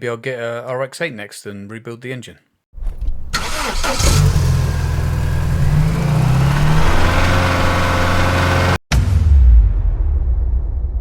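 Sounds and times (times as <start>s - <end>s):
rotary engine humming: 3.3s - 8.8s.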